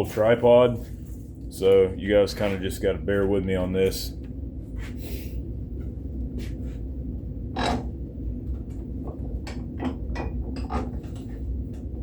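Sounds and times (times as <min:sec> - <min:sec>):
steady low hum: 0:00.0 - 0:12.0
objects knocking and clattering: 0:07.5 - 0:08.0, 0:08.6 - 0:11.4.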